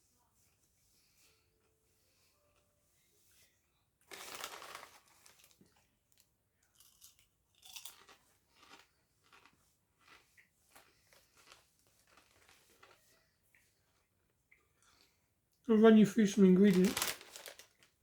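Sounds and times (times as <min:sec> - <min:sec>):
crisps crunching: 0:04.0 - 0:13.1, 0:16.2 - 0:18.0.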